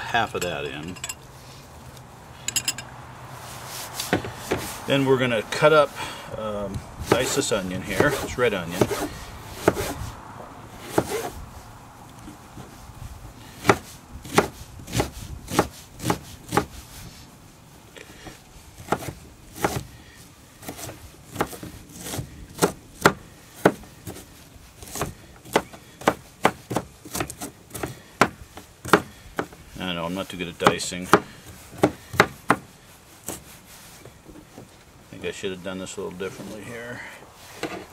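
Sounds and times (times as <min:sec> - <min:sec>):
knife chopping on cutting board: 0:13.6 - 0:16.7.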